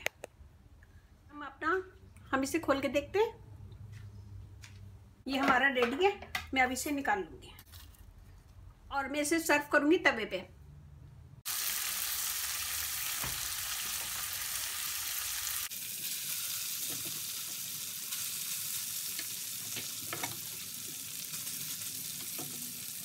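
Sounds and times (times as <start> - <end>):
chicken and peppers sizzling: 11.4 - 23.0.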